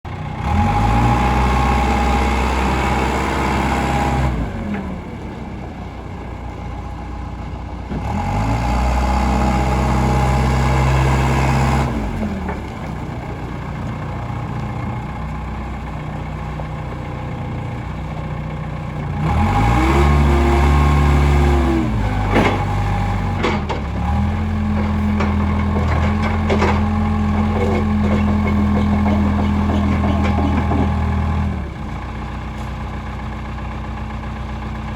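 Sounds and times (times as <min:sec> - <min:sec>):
diesel engine revving: 0:00.3 - 0:05.3, 0:19.0 - 0:34.1
sharp knocks: 0:24.7 - 0:31.2.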